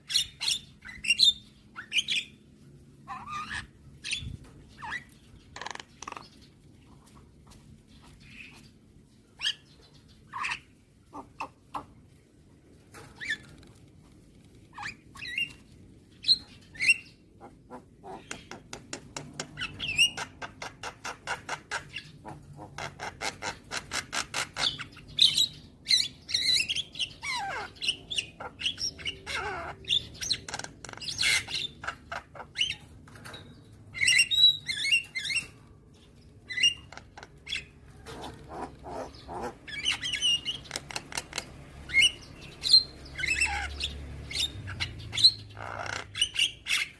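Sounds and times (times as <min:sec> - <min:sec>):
myna bird calling: 0:16.2 - 0:33.4, 0:34.0 - 0:46.9.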